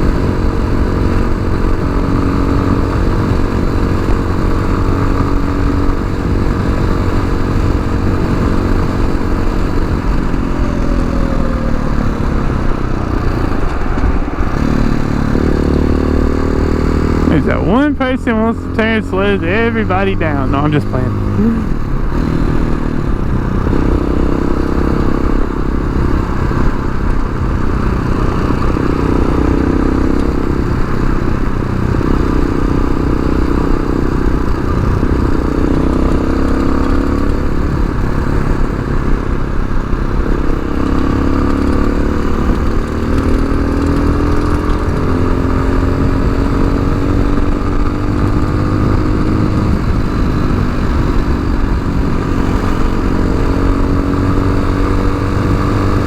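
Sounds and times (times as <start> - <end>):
motorcycle engine running: 0.0 - 56.0
wind noise: 21.1 - 56.0.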